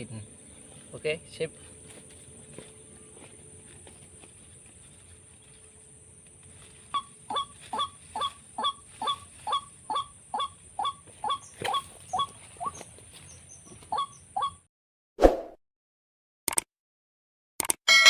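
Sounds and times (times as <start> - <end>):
waterhen honking calls: 6.9 - 12.8, 13.9 - 14.6.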